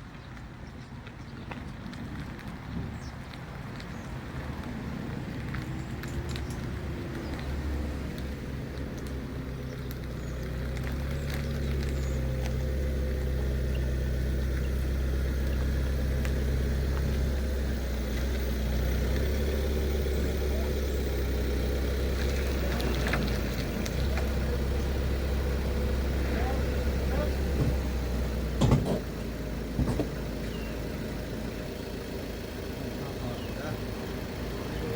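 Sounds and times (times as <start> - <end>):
vehicle engine running: 0.1 - 34.9
light clicks and knocks: 28.6 - 29.1, 29.8 - 30.2.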